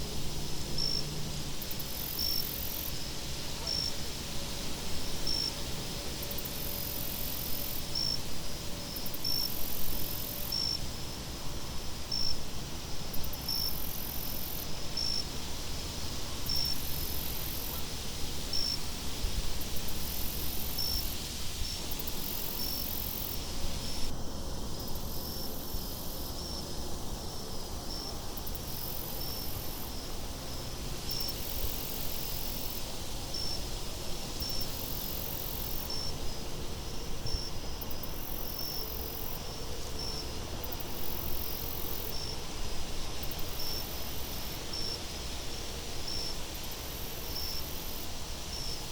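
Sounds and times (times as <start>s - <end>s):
insects chirping: 1.6s - 3.9s, 13.2s - 15.2s, 19.9s - 24.2s, 24.8s - 33.6s, 34.4s - 48.9s.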